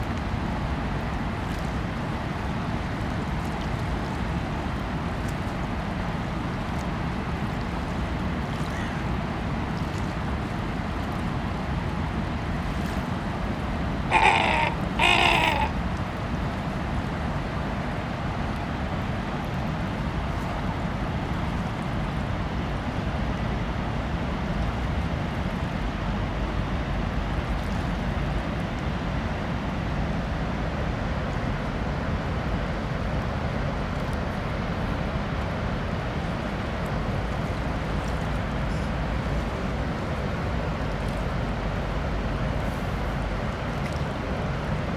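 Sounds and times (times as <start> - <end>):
low outdoor rumble: 0.0 - 44.9
harsh bird calls: 14.1 - 15.8.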